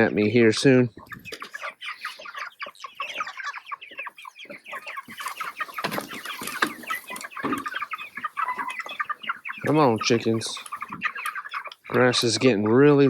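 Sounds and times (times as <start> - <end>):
chickens clucking: 0.0 - 13.0
rustling knocks: 5.1 - 7.8.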